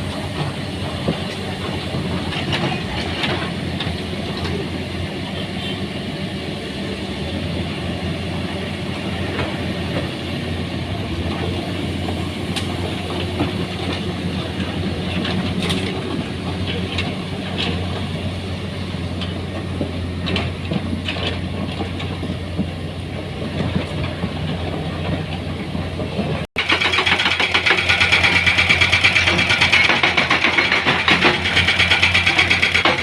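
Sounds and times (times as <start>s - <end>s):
heavy machinery engine running: 0.0s - 33.0s
knocks and clatter: 26.0s - 33.0s.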